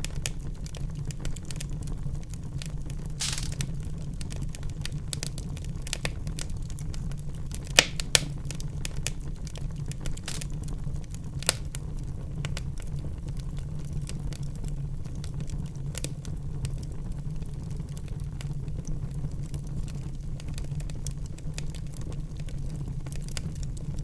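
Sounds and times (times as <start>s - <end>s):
low rumble of flames: 0.0s - 24.0s
wood fire crackling: 0.0s - 24.0s
sharp fire pops: 3.2s - 6.5s, 7.6s - 9.2s, 10.0s - 10.7s.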